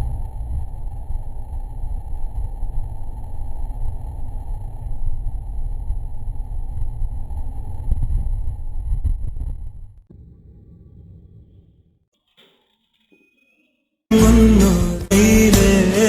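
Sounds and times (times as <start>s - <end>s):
wind buffeting: 0.0s - 12.0s.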